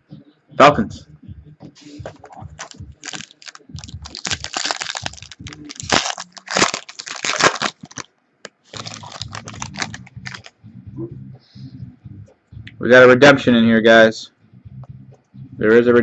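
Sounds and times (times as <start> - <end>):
wrapper crinkling and rustling: 2.6 - 10.5.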